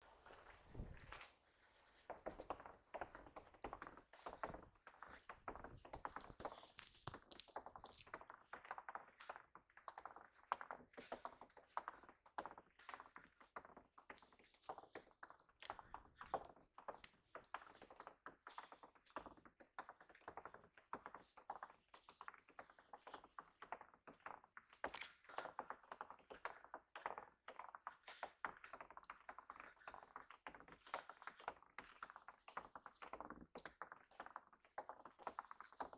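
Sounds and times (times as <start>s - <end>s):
faint irregular tapping and clicking: 0.0s - 35.9s.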